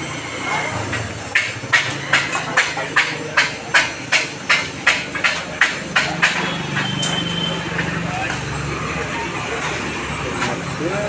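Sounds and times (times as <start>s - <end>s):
hammer striking metal: 0.8s - 8.4s.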